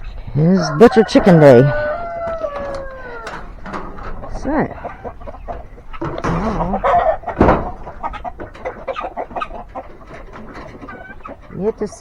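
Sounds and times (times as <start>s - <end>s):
chickens clucking: 0.0s - 12.0s
loud knock: 6.0s - 8.2s.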